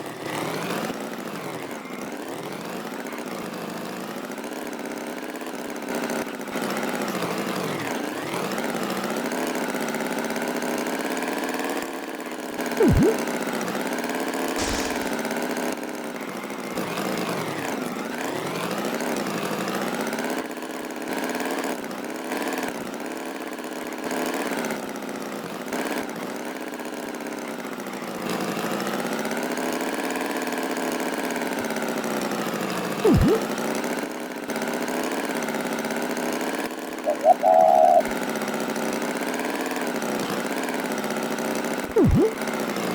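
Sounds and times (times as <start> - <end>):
loud swooping pitch glide: 12.8 - 13.3, 33.0 - 33.5, 37.1 - 38.1, 41.9 - 42.4
engine-like wavering drone: 37.1 - 38.1.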